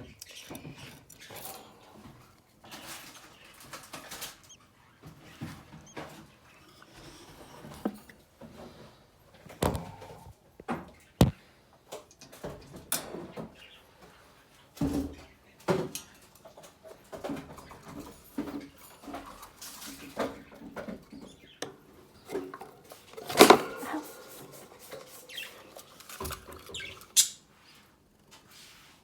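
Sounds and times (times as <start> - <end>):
budgerigars chirping: 23.7 - 25.9, 26.6 - 27.8.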